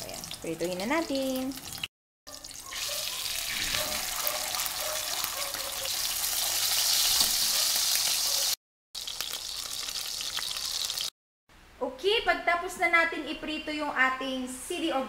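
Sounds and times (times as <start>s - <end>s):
burger patties sizzling in oil: 0.0s - 11.1s.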